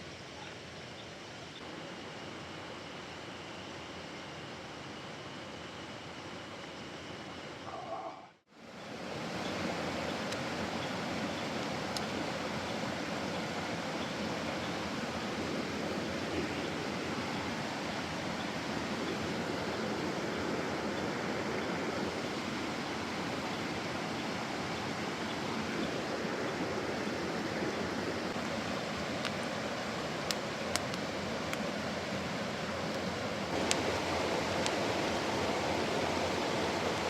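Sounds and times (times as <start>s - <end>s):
stream rushing over rocks: 8.8s - 37.0s.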